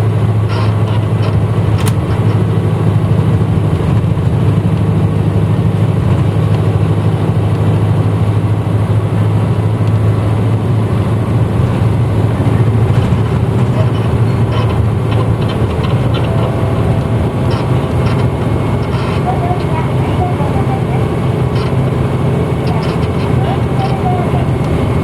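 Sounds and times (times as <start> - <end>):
bus engine drone: 0.0 - 25.0
faint light rattles: 11.5 - 25.0.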